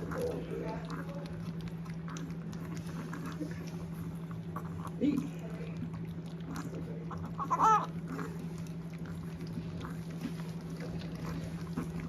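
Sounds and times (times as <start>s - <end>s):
puppies lapping milk: 0.0s - 12.0s
puppy whining: 6.4s - 12.0s.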